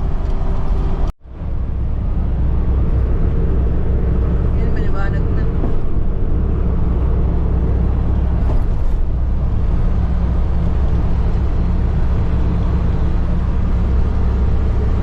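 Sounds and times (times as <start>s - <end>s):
road noise: 0.0s - 15.0s
vehicle engine drone: 0.0s - 15.0s.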